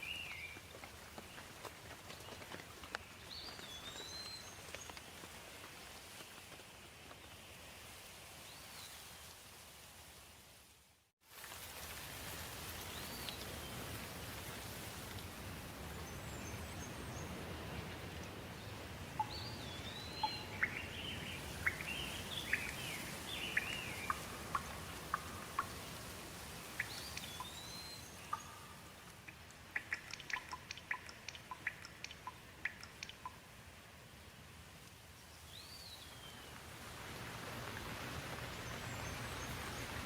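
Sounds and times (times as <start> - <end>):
steady rain falling: 0.0 - 40.0
birds chirping: 15.9 - 33.4
sharp water drips: 19.1 - 33.6.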